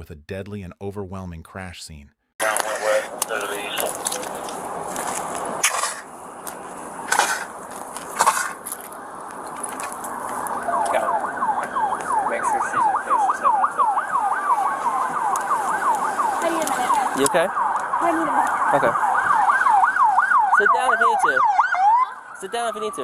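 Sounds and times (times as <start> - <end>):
siren in fast yelp mode: 10.2 - 23.0.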